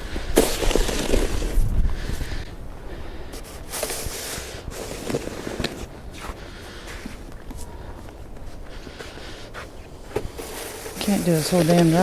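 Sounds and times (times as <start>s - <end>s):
snow crunching: 0.3s - 1.7s, 10.3s - 12.0s
shovel scraping wet snow: 0.4s - 1.6s, 10.4s - 12.0s.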